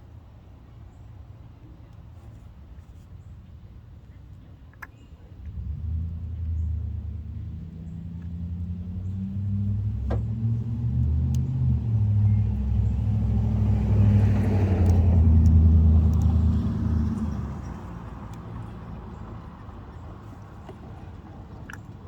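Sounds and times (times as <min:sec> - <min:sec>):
car engine running: 0:05.4 - 0:20.0.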